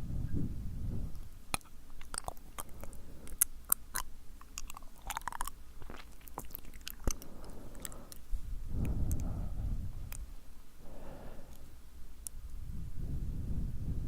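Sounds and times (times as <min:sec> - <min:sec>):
lip smacks: 0:01.1 - 0:09.4
tongue clicks: 0:01.1 - 0:09.4, 0:10.1 - 0:10.3.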